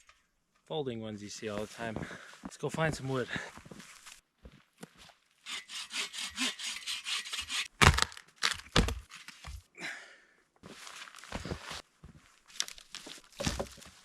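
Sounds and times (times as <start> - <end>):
hand saw cutting branch: 5.5 - 7.8
branch cracking: 12.5 - 13.8.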